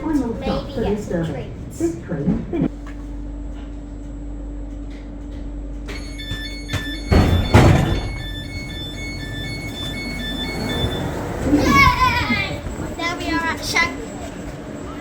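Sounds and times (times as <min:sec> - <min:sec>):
train low hum: 0:00.0 - 0:15.0
high door beeps: 0:05.9 - 0:12.0
train doors sliding open: 0:05.9 - 0:15.0.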